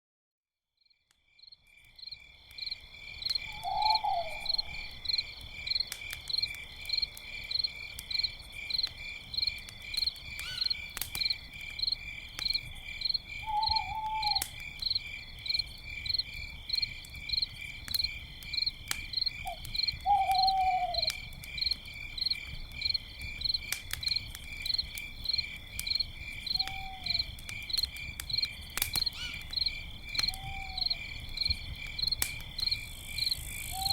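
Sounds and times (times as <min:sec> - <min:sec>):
campfire crackling and popping: 0:01.1 - 0:33.9
crickets chirping: 0:01.3 - 0:33.9
owl hooting: 0:03.5 - 0:04.9, 0:13.4 - 0:14.4, 0:19.4 - 0:21.1, 0:26.6 - 0:27.3, 0:30.3 - 0:31.0, 0:33.6 - 0:33.9.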